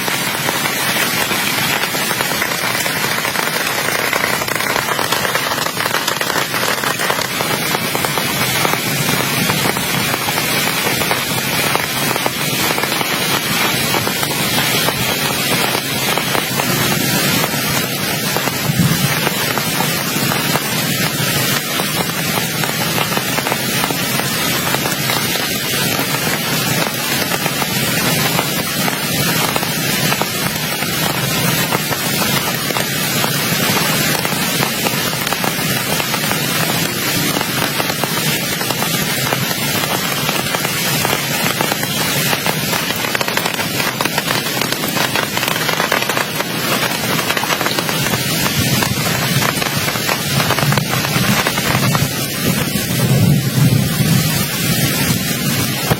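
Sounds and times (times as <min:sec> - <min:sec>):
heavy rain pouring: 0:00.0 - 0:55.9.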